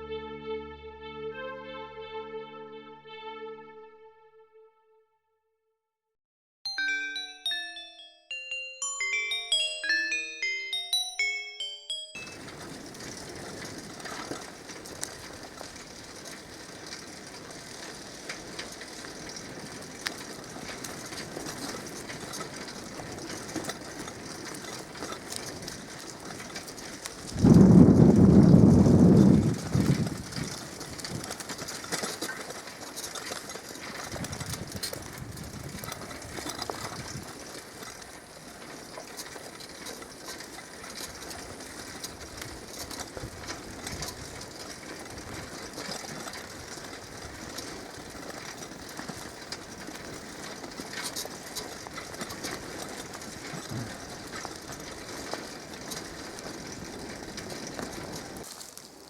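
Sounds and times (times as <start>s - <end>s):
small scattered crackles: 12.3s - 59.0s.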